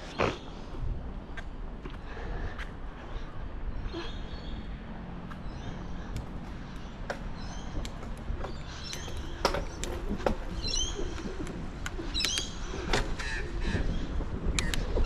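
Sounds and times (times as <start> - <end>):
bicycle tyres rumbling: 0.0 - 15.0
wind on microphone: 7.4 - 15.0.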